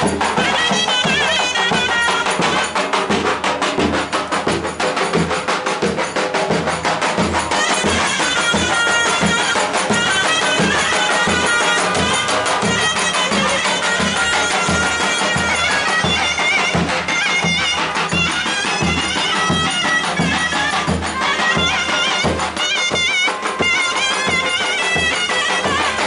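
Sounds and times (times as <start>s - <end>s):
shrill reed wind instrument melody: 0.0s - 26.0s.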